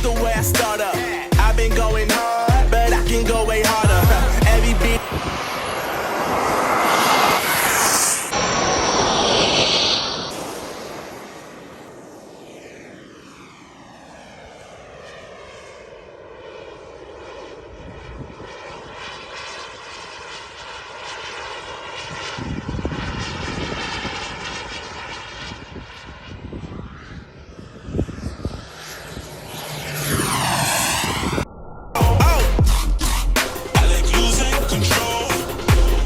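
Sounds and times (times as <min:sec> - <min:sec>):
model jet turbine flying by: 0:03.6 - 0:32.0.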